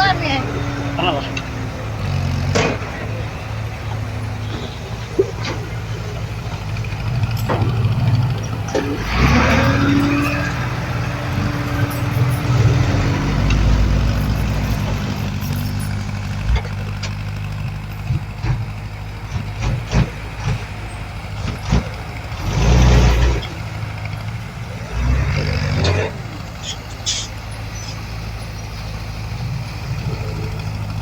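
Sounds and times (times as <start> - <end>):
knocks and clanks: 0.0 - 24.3
bulldozer diesel engine running: 0.0 - 31.0.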